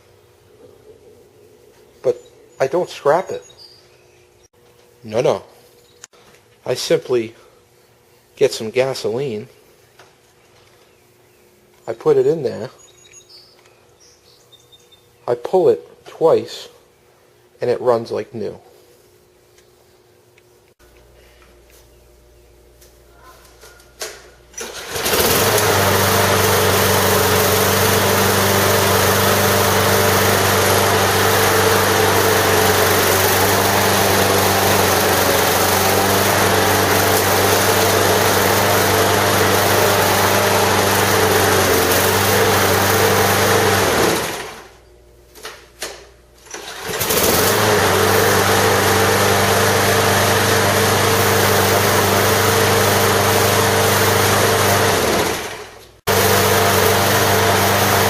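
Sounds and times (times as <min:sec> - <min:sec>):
lawnmower engine running: 0:24.5 - 0:44.8, 0:46.4 - 0:58.0.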